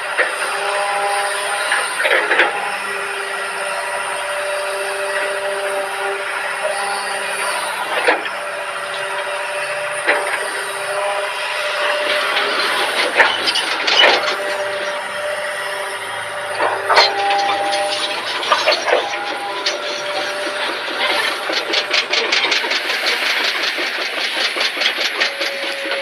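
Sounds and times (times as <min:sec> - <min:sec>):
excavator engine and hydraulics whine: 0:00.0 - 0:26.0
metal knocks and clanks: 0:11.1 - 0:26.0.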